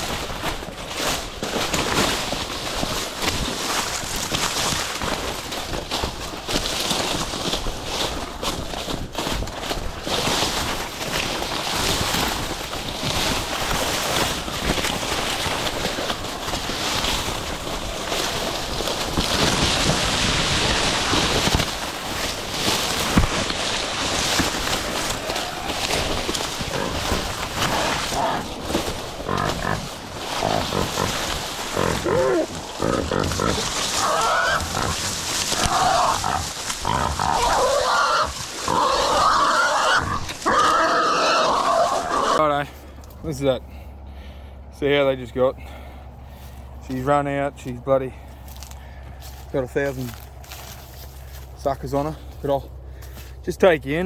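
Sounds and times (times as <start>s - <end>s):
dry cane leaves rustling and crackling: 0.0s - 54.0s
pig squealing: 22.7s - 42.6s.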